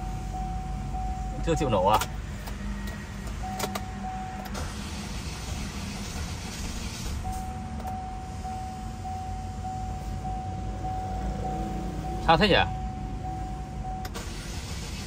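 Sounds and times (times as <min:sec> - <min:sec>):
car warning chime beeping: 0:00.0 - 0:05.8, 0:07.2 - 0:15.0.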